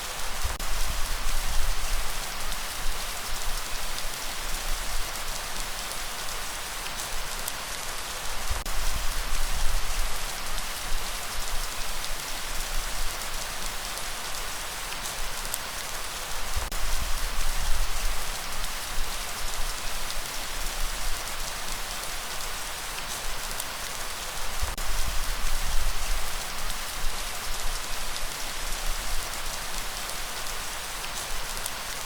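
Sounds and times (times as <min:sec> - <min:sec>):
low rumble of breeze: 0:00.0 - 0:05.4, 0:16.3 - 0:21.7
light rain falling: 0:00.0 - 0:32.0.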